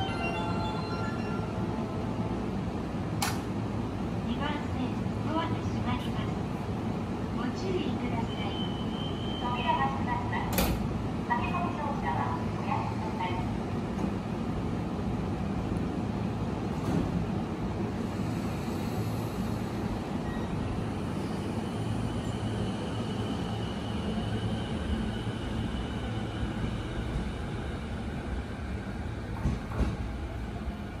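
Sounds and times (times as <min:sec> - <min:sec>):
train wheels rumbling: 0:16.6 - 0:31.0.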